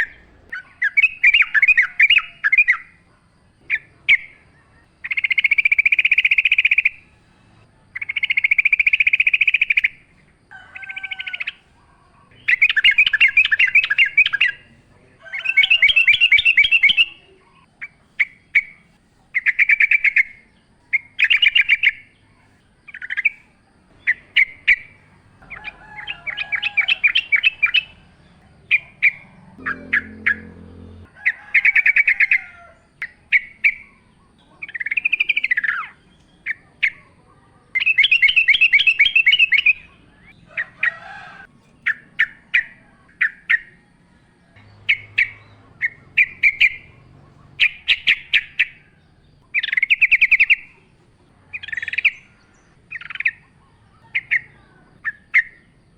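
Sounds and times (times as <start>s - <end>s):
bulbul singing: 0.0s - 3.0s, 3.6s - 41.0s, 41.6s - 55.9s
faint low rumble: 27.5s - 31.2s.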